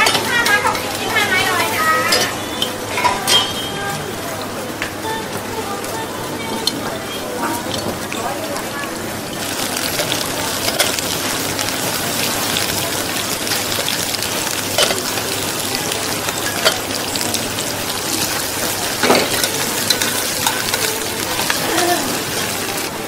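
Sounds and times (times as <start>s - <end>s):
food sizzling in hot oil: 5.8s - 23.0s.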